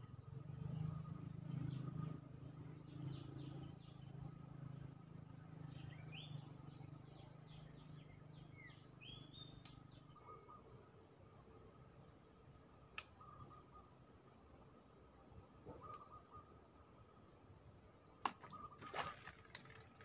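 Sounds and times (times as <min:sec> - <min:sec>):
birds chirping and calling: 0:05.6 - 0:11.0, 0:13.0 - 0:14.2, 0:15.6 - 0:16.9, 0:18.3 - 0:19.7.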